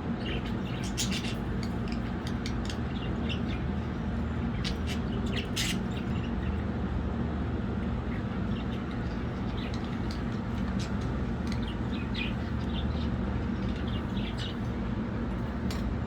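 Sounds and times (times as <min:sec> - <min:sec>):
low background hum: 0:00.0 - 0:16.0
budgerigars chirping: 0:00.2 - 0:03.8, 0:04.4 - 0:06.4, 0:08.1 - 0:14.7.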